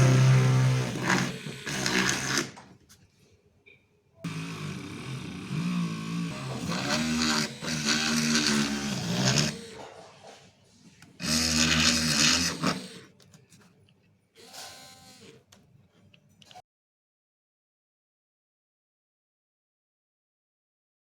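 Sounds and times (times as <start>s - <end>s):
small drill motor whirring: 0.0s - 2.6s, 4.2s - 9.9s, 11.2s - 13.2s, 14.4s - 15.4s.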